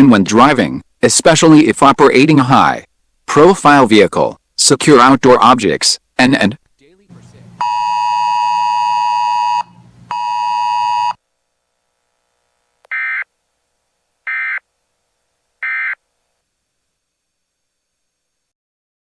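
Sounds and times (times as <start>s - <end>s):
long loud electronic beeps: 7.6s - 11.2s, 14.3s - 14.6s, 15.6s - 16.0s.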